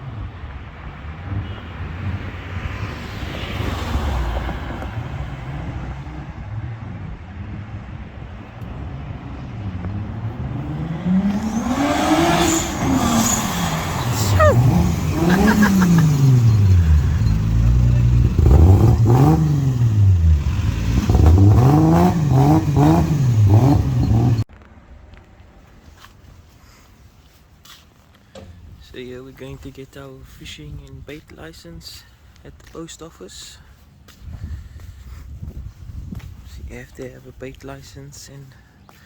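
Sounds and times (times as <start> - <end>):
car engine revving: 9.1 - 24.4.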